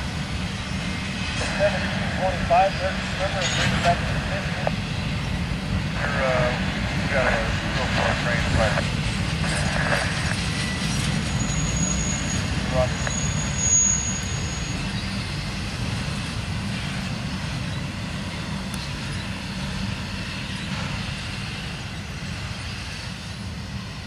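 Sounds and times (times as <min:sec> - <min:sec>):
freight train wheels rumbling: 0:00.0 - 0:24.0
thin high whine: 0:06.0 - 0:15.3.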